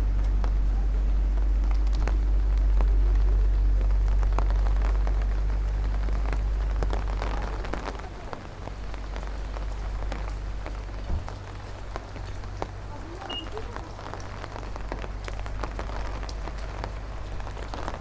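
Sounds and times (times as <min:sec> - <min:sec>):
deep rumble: 0:00.0 - 0:18.0
heavy rain on the street: 0:00.0 - 0:18.0.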